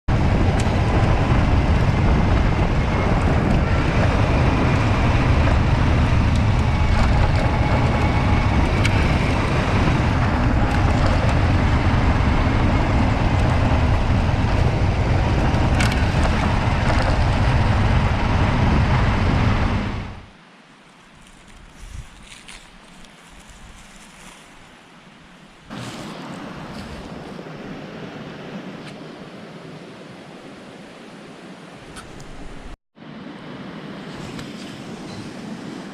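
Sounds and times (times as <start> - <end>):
motorcycle engine: 0.1 - 20.3
wind buffeting microphone: 0.1 - 20.3, 21.4 - 24.4.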